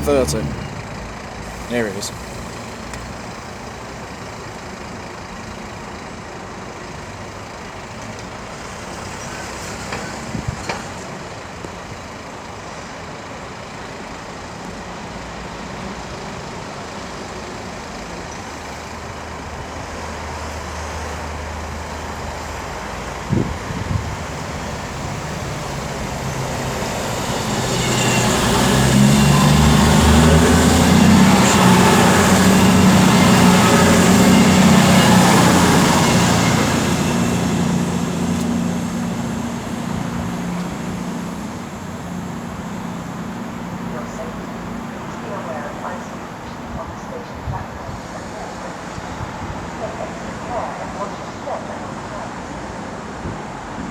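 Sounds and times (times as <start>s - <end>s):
train rumbling: 0.0s - 13.1s, 14.0s - 53.9s.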